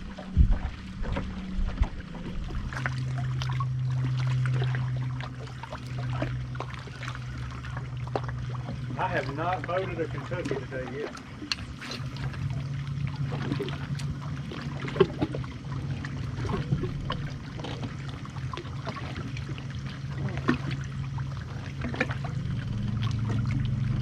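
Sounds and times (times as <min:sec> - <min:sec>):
steady low hum: 0:00.0 - 0:24.0
waves lapping against hull: 0:00.0 - 0:24.0.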